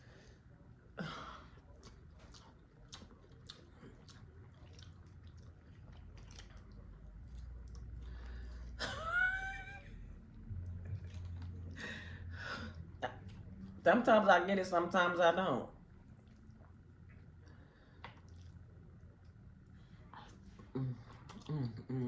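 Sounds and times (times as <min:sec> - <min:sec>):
chewing: 0:01.4 - 0:08.8, 0:10.4 - 0:11.9, 0:15.9 - 0:22.0.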